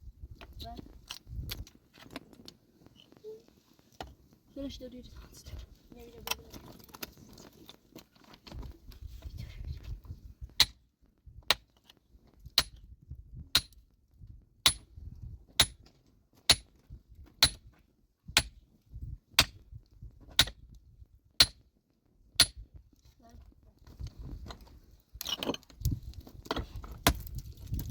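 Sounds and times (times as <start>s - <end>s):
metal tool striking rock: 10.6s - 10.8s, 12.6s - 12.8s, 13.5s - 13.8s, 14.6s - 14.9s, 15.6s - 15.8s, 16.5s - 16.7s, 17.4s - 17.7s, 18.4s - 18.6s, 19.4s - 19.6s, 20.4s - 20.6s, 21.4s - 21.6s, 22.4s - 22.6s.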